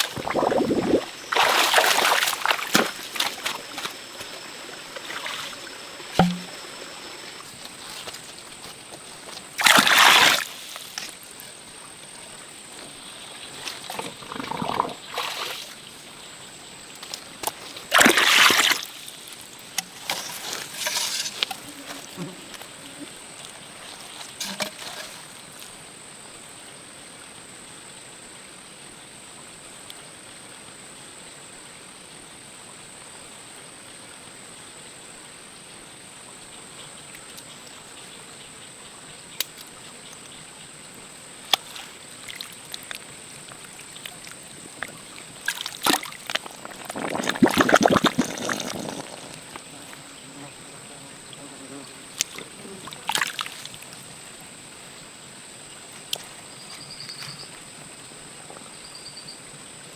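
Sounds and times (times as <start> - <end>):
water splashing: 0.0 - 11.4, 13.1 - 16.0, 17.1 - 22.7, 41.5 - 50.0, 52.1 - 54.2.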